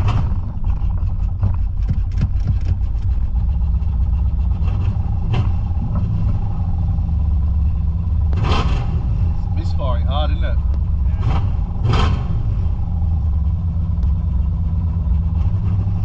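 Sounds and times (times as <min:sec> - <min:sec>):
engine misfire pops: 0:00.0 - 0:03.2
car engine running rough: 0:00.0 - 0:16.0.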